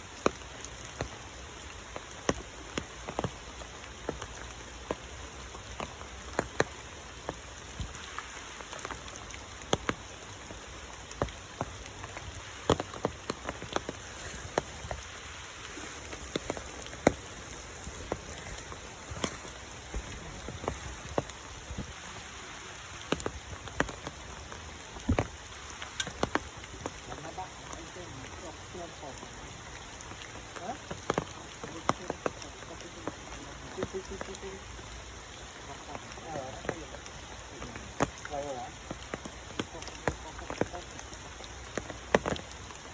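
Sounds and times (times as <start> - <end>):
rain falling: 0.0 - 42.9
water drops striking close by: 23.0 - 29.2.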